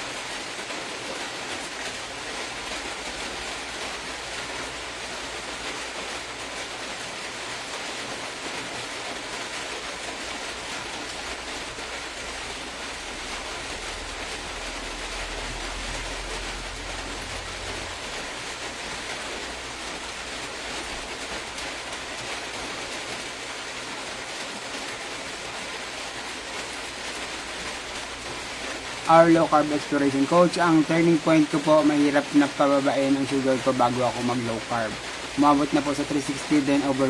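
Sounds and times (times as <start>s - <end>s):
steady hiss: 26.7s - 37.0s.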